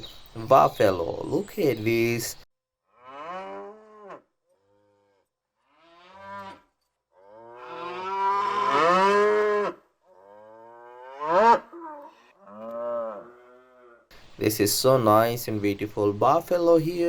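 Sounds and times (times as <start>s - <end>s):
buffalo mooing: 2.9s - 14.1s.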